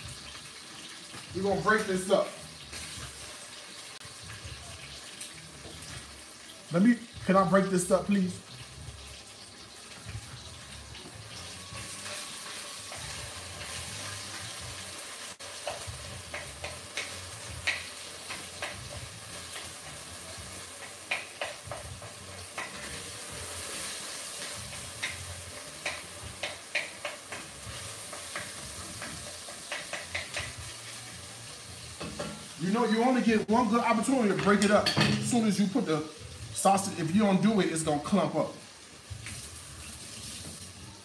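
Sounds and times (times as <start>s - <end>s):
meat sizzling in a pot: 0.0s - 41.0s.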